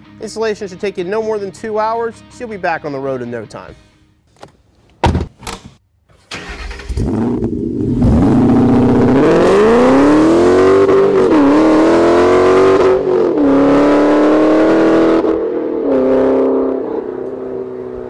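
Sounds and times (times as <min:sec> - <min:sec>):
car engine accelerating hard: 0:06.4 - 0:18.0.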